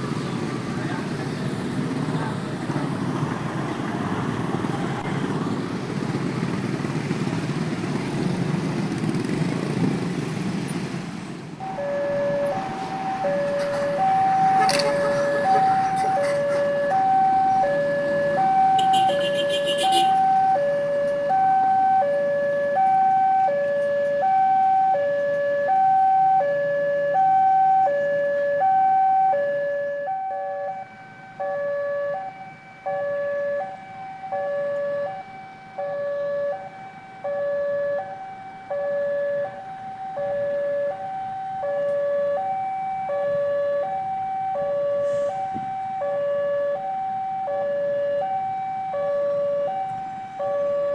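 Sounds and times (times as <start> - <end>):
two-tone level crossing alarm: 11.6 - 50.9.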